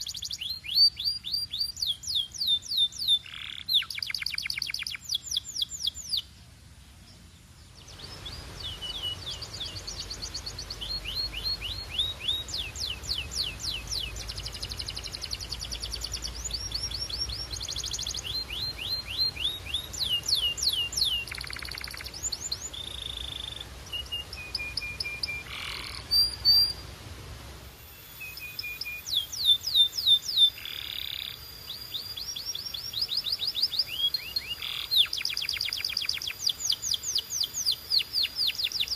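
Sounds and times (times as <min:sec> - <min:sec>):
canary singing trills: 0:00.0 - 0:06.4, 0:07.1 - 0:26.9, 0:27.8 - 0:38.9
faint low rumble: 0:05.4 - 0:28.6.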